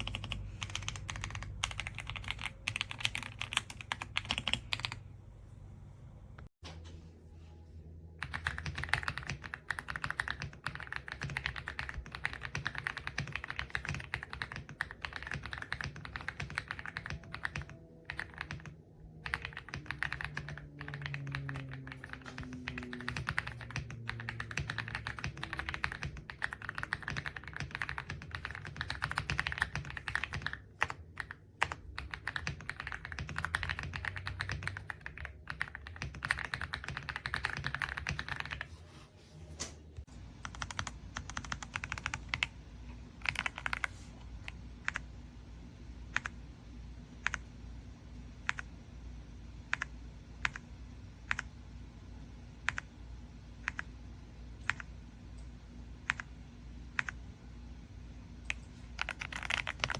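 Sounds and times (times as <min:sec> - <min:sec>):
mechanical keyboard typing: 0:00.0 - 0:05.0, 0:08.2 - 0:38.7, 0:40.4 - 0:42.5, 0:43.2 - 0:45.0, 0:49.7 - 0:51.5, 0:53.6 - 0:53.9, 0:56.0 - 0:56.3, 0:56.9 - 0:57.2, 0:58.5 - 0:59.9.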